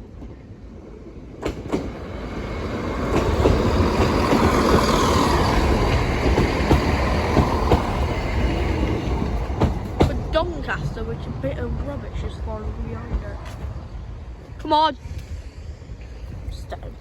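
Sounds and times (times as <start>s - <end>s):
train passing: 0.0s - 17.0s
wheels clicking over rail joints: 1.3s - 13.9s.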